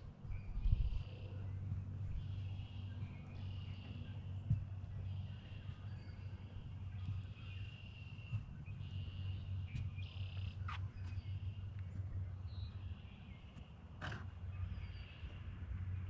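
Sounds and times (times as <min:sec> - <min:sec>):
faint high bird calls: 0:00.4 - 0:11.9.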